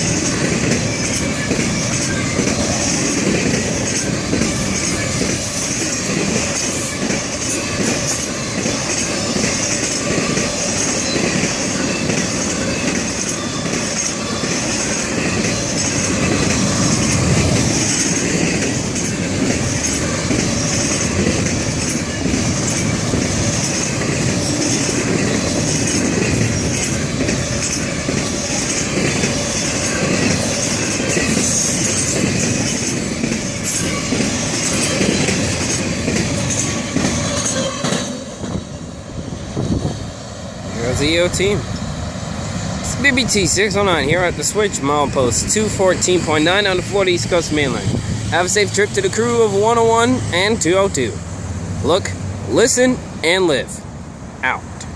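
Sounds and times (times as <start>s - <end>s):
high wheel squeal: 0.0s - 18.2s, 18.8s - 38.4s
wheels clicking on rail joints: 0.0s - 51.2s
freight cars rumbling on rails: 0.0s - 54.9s.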